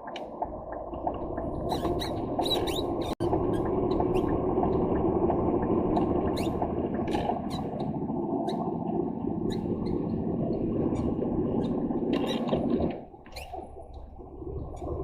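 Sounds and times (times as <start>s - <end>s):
lorry engine and road drone: 0.4s - 12.9s
cab squeaks and creaks: 1.6s - 4.4s, 5.9s - 8.7s, 9.4s - 10.2s, 10.9s - 13.7s.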